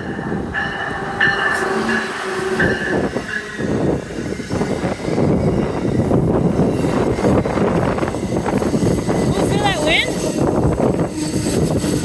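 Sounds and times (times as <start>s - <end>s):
train rumble: 0.0s - 12.0s
wheel and brake squealing: 8.0s - 12.0s.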